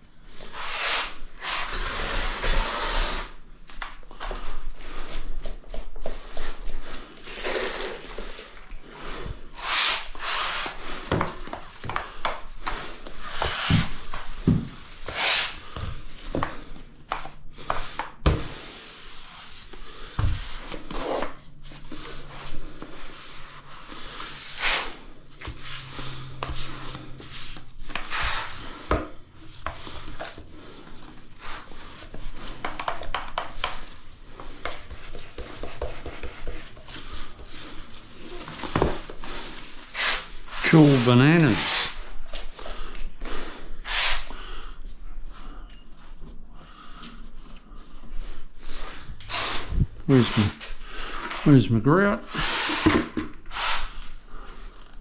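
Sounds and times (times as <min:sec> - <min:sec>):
tools scraping tile adhesive: 0:00.6 - 0:03.4, 0:34.4 - 0:42.0, 0:52.3 - 0:54.0.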